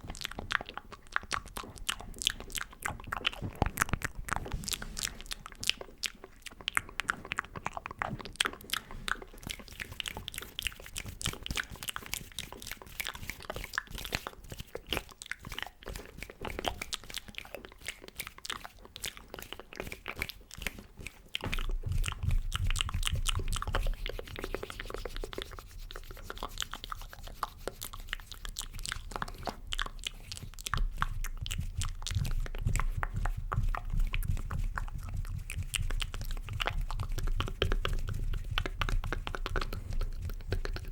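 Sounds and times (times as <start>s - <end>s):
wet mouth clicks and smacks: 0.0s - 40.9s.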